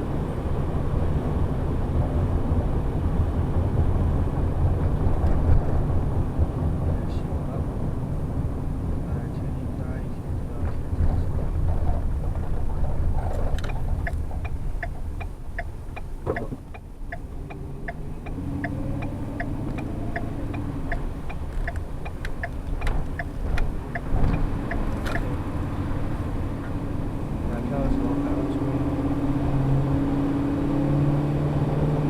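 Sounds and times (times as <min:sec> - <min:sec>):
vehicle engine and road rumble: 0:00.0 - 0:32.0
turn signal ticking: 0:13.0 - 0:27.4.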